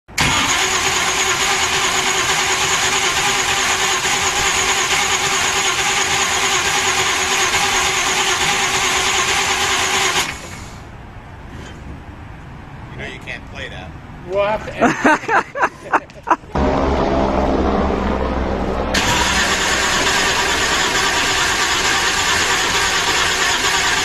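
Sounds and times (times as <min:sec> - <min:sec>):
loud vehicle exhaust: 0:16.5 - 0:24.0.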